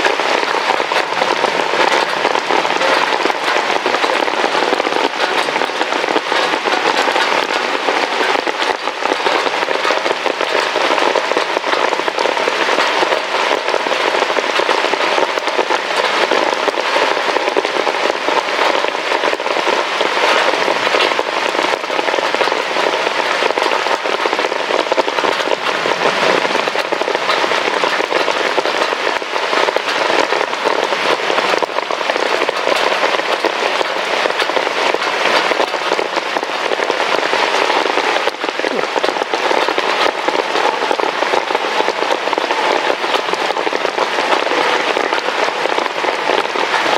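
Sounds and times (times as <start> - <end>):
heavy rain on hard surface: 0.0 - 46.9.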